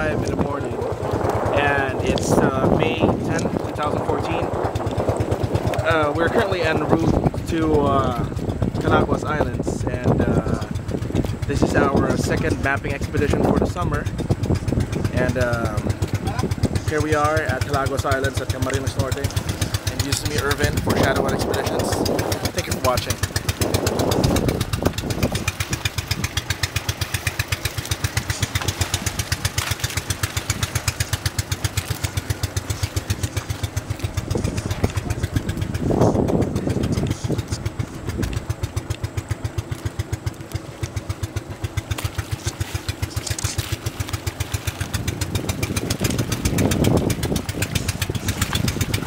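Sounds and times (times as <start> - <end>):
motorboat engine chugging: 0.0 - 49.0.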